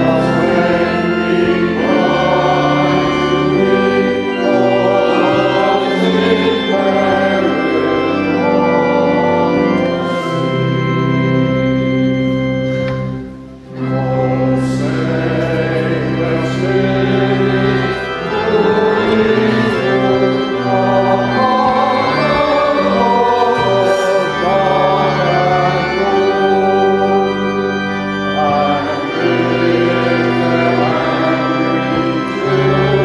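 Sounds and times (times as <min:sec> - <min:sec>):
voices singing: 0:00.0 - 0:10.8, 0:13.8 - 0:33.0
church organ chords: 0:00.0 - 0:33.0.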